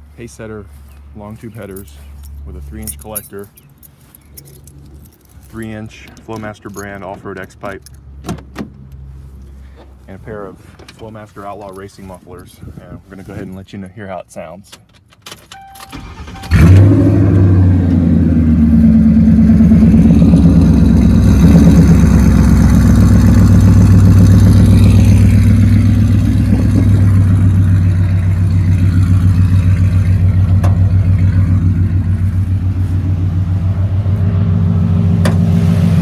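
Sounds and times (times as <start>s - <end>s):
car engine starting and idling: 15.0s - 36.0s.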